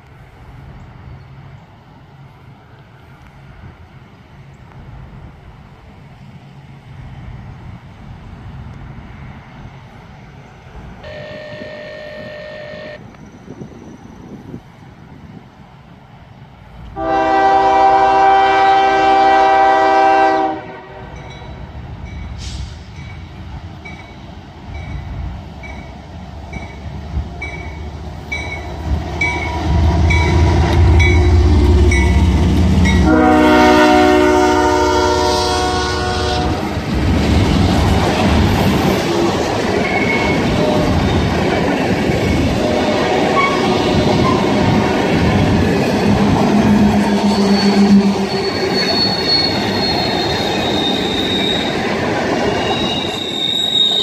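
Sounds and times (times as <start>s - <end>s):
locomotive horn blasts: 11.0s - 13.0s, 17.0s - 21.4s, 29.2s - 36.7s, 39.0s - 41.2s, 42.6s - 44.9s, 46.2s - 48.9s
locomotive engine rumble: 21.0s - 53.4s.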